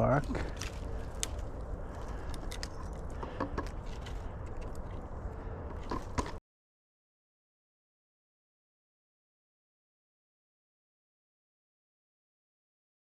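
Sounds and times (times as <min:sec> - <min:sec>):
low steady rumble: 0:00.0 - 0:06.4
small clicks and rustles: 0:00.2 - 0:05.1.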